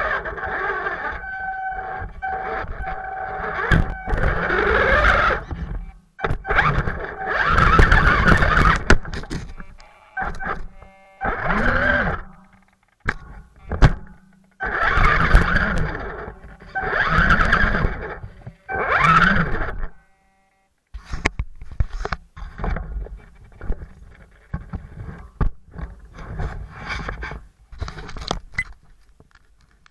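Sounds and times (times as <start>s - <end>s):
electric motor and gears whining: 0.0s - 20.6s.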